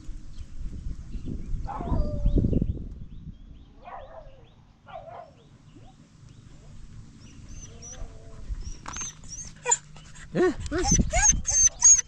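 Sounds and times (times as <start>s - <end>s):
birds chirping: 1.1s - 12.0s
dogs yelping and whining: 7.5s - 12.0s.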